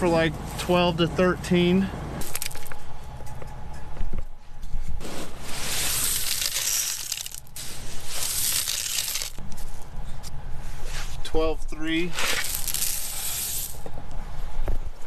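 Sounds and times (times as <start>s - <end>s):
grain rattling and hissing: 5.0s - 9.4s, 12.1s - 13.8s.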